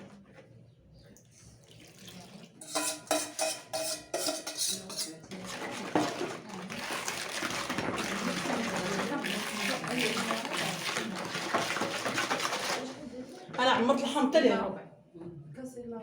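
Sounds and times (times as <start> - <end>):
dishes and utensils clinking: 2.6 - 13.0
running water rushing: 5.8 - 12.9.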